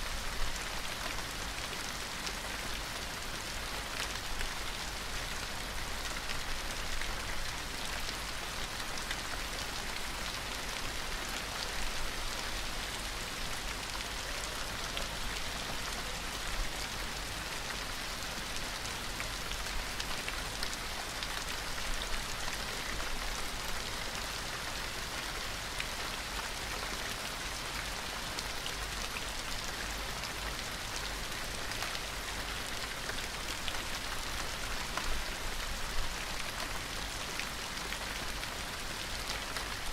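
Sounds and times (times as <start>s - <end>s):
gentle rain falling: 0.0s - 39.9s
patter of raindrops: 0.0s - 39.9s.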